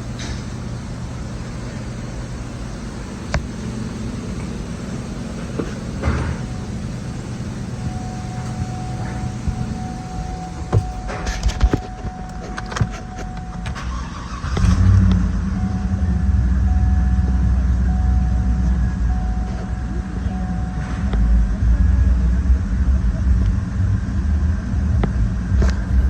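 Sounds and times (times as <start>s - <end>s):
car engine starting and idling: 0.0s - 26.0s
electronic chime tone: 15.5s - 21.8s.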